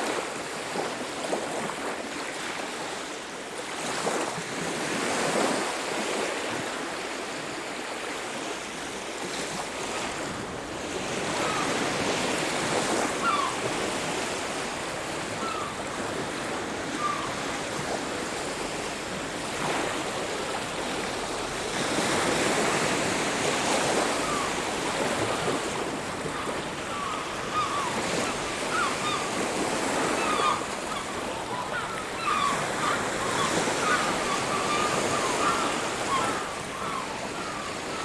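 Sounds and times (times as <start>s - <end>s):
bird calls: 12.8s - 17.6s, 23.6s - 38.0s.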